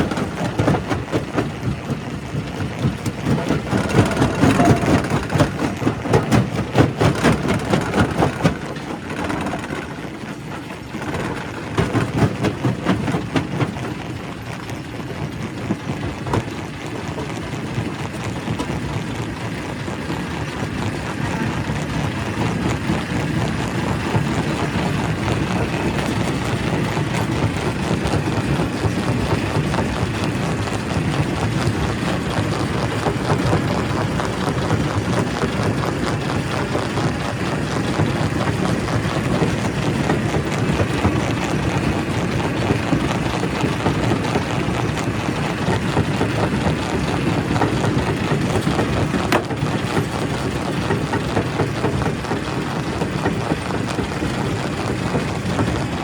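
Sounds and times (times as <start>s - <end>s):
heavy machine drone: 0.0s - 12.2s.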